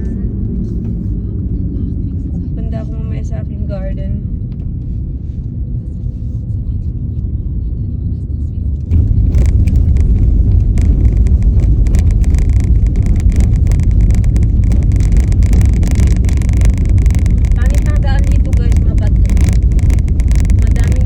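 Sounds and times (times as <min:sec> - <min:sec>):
car road rumble: 0:00.0 - 0:21.0
tyres crackling on gravel: 0:08.9 - 0:21.0.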